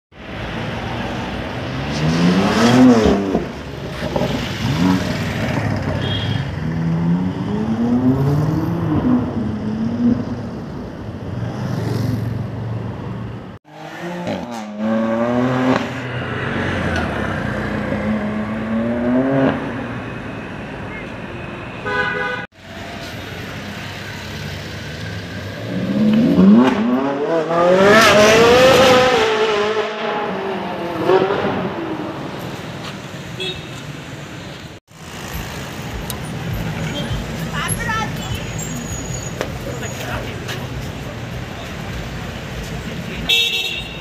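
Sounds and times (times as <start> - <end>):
car engines accelerating hard: 0.3 - 5.9, 13.6 - 19.9, 23.4 - 32.8.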